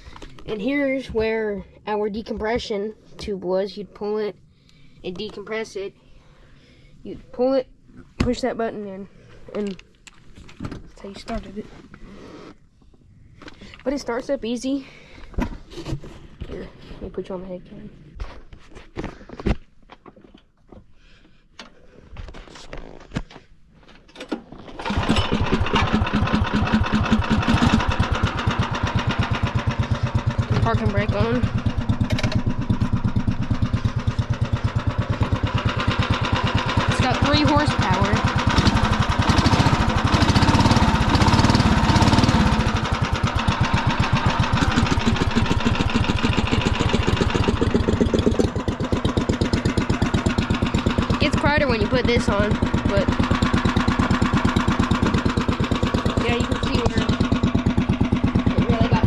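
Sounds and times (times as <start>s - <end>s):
small engine chugging: 24.7s - 59.0s.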